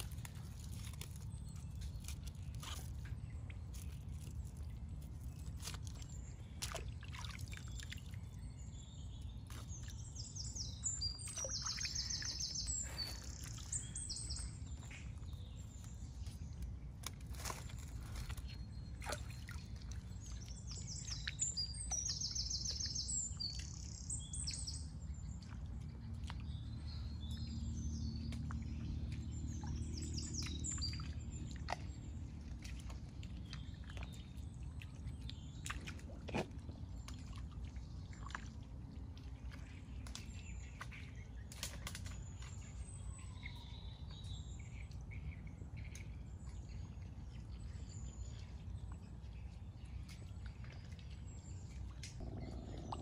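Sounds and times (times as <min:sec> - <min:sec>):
birds chirping: 0:00.0 - 0:38.1, 0:39.0 - 0:53.0
steady low rumble: 0:24.8 - 0:53.0.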